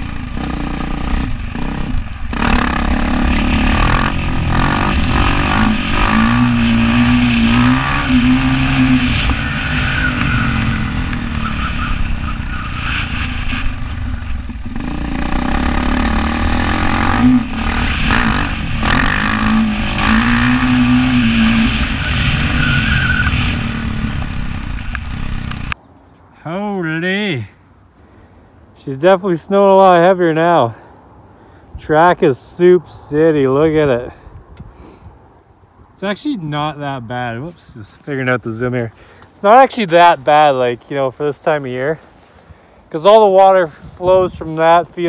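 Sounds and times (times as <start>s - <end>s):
dirt bike engine revving: 0.0s - 25.7s.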